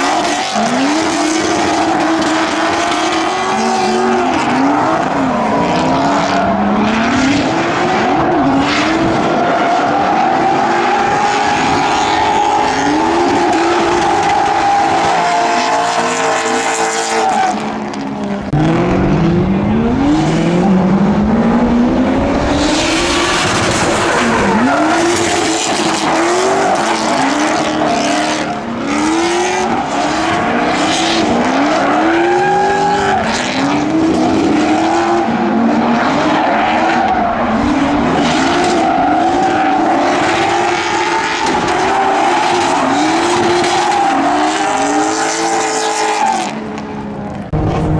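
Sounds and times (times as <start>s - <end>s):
car engines revving: 0.0s - 47.9s.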